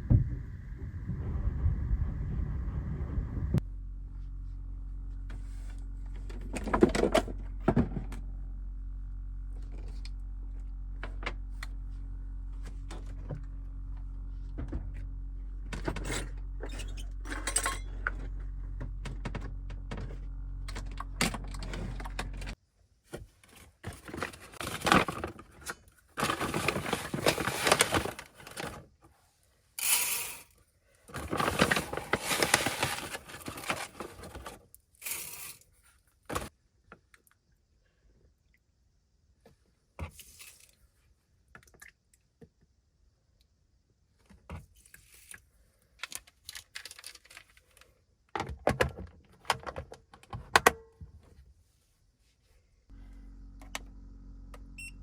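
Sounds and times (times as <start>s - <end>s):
steady low hum: 0.0s - 22.6s, 52.8s - 55.0s
rustling and scraping: 21.6s - 30.5s, 31.1s - 36.5s.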